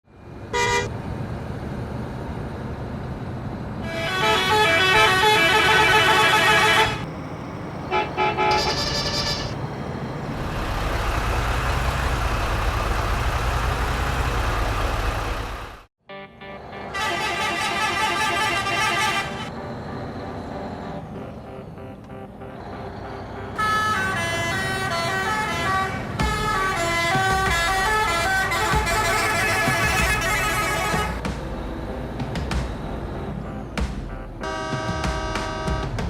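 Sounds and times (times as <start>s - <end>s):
vehicle horn blasts: 0.5s - 0.9s, 3.8s - 7.0s, 7.9s - 9.6s, 16.8s - 19.5s, 23.6s - 31.2s, 34.4s - 36.0s.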